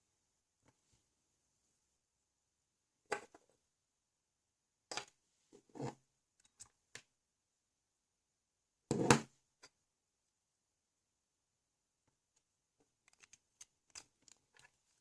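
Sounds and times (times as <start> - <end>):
plastic toy bricks clicking: 13.0 - 14.7.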